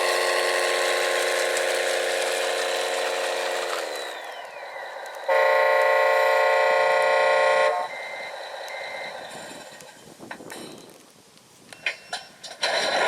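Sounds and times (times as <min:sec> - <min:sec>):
whining motor winding down: 0:00.0 - 0:06.0
horn sounding steadily: 0:05.3 - 0:08.1.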